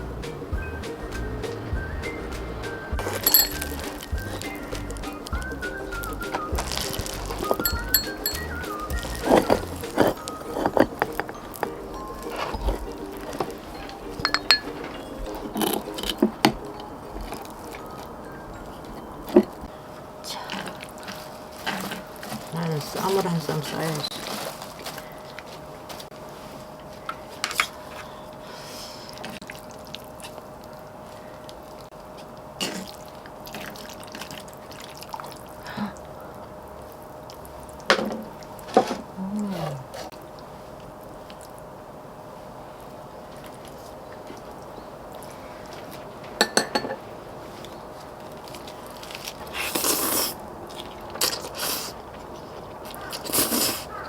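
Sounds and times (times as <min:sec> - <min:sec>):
faint steady hum: 0:00.0 - 0:54.0
utensils clicking against dishes: 0:03.1 - 0:04.0, 0:07.5 - 0:16.3
crunchy biting and chewing: 0:48.8 - 0:52.0.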